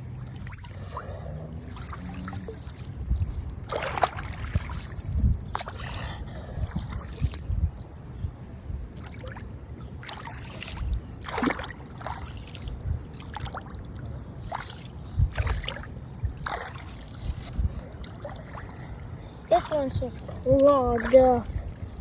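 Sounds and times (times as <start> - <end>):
floodwater splashing: 0.0 - 6.0, 8.9 - 21.8
wind rumble on microphone: 0.0 - 22.0.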